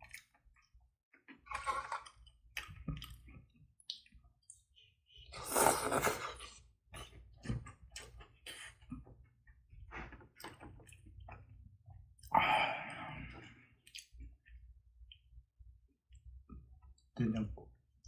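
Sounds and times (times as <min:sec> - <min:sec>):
person chewing: 0:05.2 - 0:09.0.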